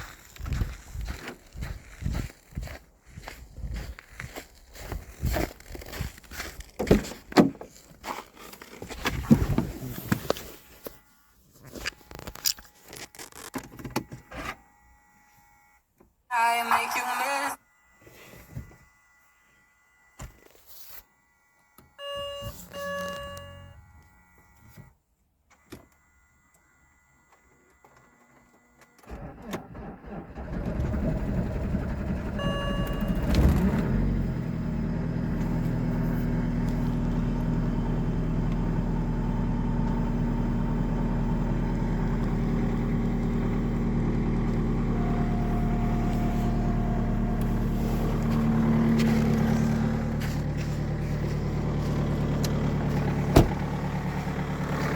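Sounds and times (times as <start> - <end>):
short dashboard chime: 22.0 - 23.9, 32.3 - 33.8
diesel engine idling: 29.1 - 54.9.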